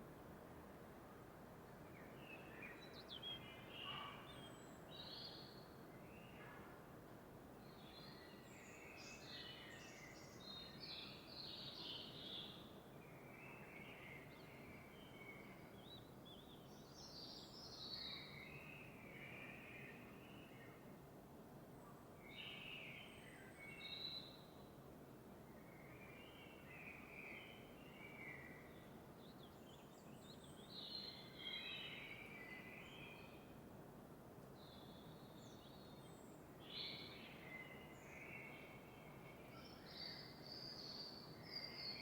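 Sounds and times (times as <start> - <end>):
songbirds chirping: 25.5 - 33.7, 34.5 - 42.0.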